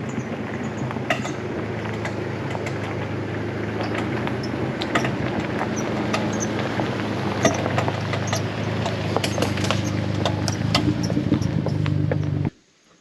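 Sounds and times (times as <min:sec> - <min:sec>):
car engine running: 0:00.0 - 0:12.5.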